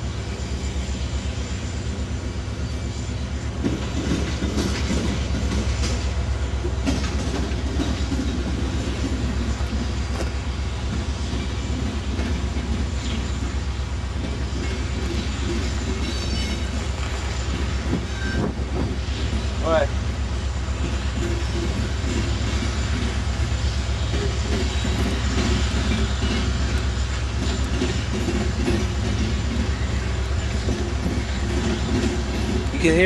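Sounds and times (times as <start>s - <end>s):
low diesel locomotive drone: 0.0s - 33.0s
train wheels clattering over rail joints: 1.9s - 33.0s
high wheel squeal: 9.4s - 20.0s, 20.8s - 33.0s.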